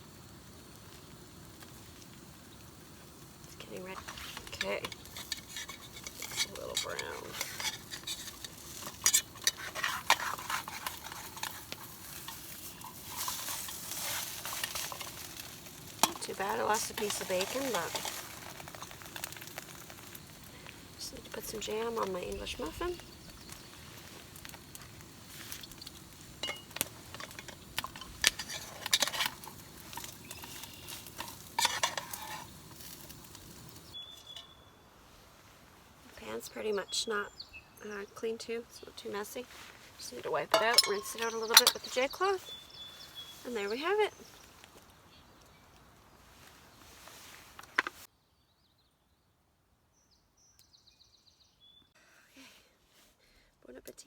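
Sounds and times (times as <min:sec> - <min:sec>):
omelet sizzling in a frying pan: 0:00.0 - 0:34.5
spatula scraping a pan: 0:03.9 - 0:19.9, 0:25.3 - 0:34.5, 0:40.5 - 0:42.3.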